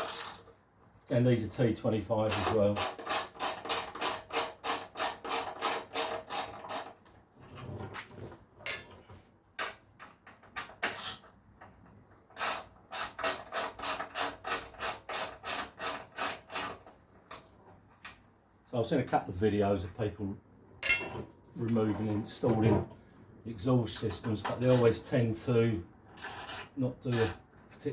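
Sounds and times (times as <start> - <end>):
tools knocking: 20.8 - 21.3.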